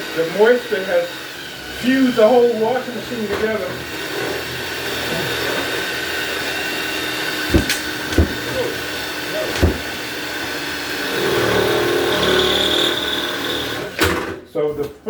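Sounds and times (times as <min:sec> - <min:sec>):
motor-like hum: 0:04.0 - 0:14.0
sharp thumps on metal panel: 0:07.4 - 0:08.6, 0:09.5 - 0:09.9.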